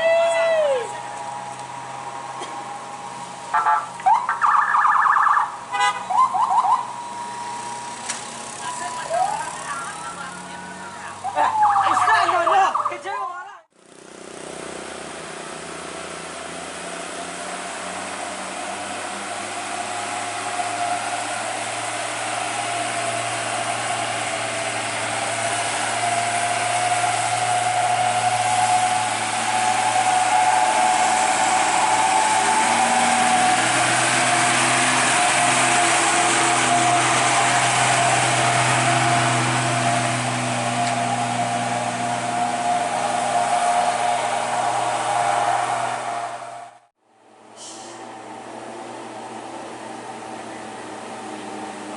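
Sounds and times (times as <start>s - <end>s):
truck engine labouring uphill: 0.0s - 51.9s.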